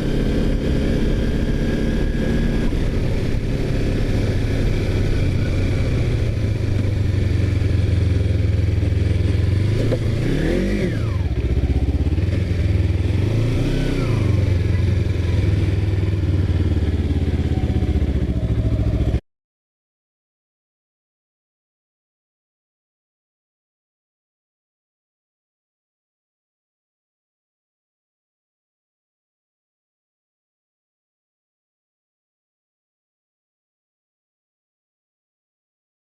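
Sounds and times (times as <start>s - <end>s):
motorcycle engine revving: 0.0s - 19.2s.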